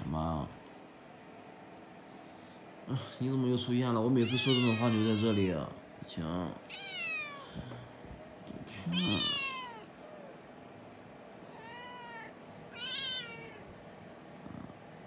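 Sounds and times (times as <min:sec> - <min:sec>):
cat meowing: 0:04.2 - 0:05.6, 0:06.7 - 0:07.5, 0:08.8 - 0:10.3, 0:11.5 - 0:13.7.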